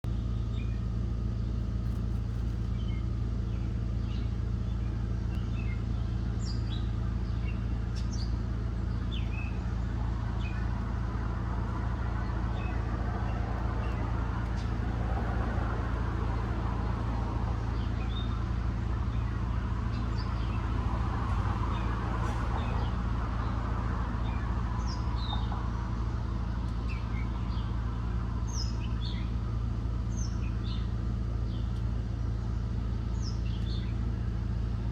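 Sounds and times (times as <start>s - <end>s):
steady low hum: 0.0s - 34.9s
small birds chirping: 0.1s - 34.9s
passing vehicles rushing: 9.2s - 31.0s.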